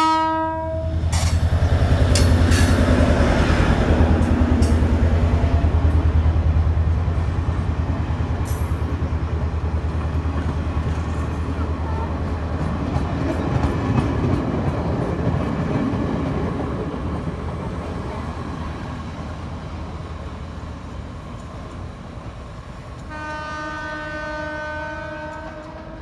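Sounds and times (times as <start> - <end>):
train horn blast: 0.0 - 1.2, 23.1 - 26.0
diesel train rumble: 0.0 - 26.0.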